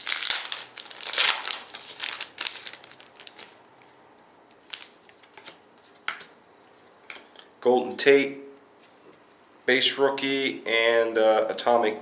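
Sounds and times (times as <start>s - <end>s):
plastic wrapper crinkling and tearing: 0.0s - 3.9s, 4.5s - 5.6s.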